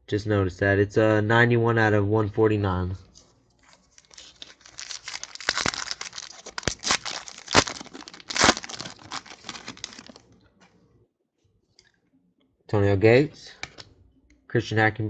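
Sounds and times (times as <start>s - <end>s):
foil wrapper tearing and crinkling: 3.7s - 10.2s.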